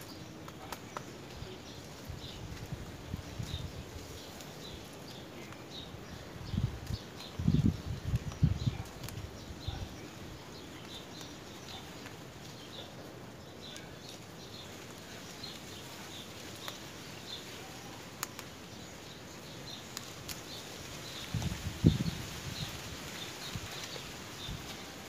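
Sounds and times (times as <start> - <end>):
small birds chirping: 0.0 - 25.0
steady outdoor hiss: 0.0 - 25.0
faint clicks: 18.1 - 18.6.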